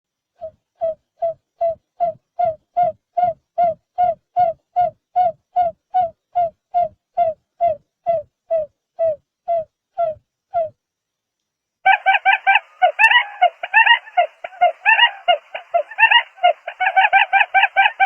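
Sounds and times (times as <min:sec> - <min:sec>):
bird hooting calls: 0:11.9 - 0:18.0.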